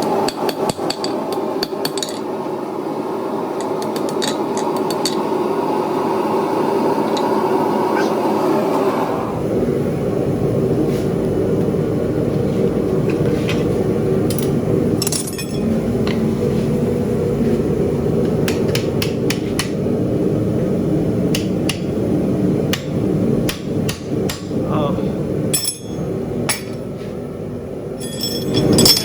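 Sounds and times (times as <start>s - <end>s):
forge running: 0.0s - 29.0s
hammer striking steel on anvil: 25.5s - 26.8s.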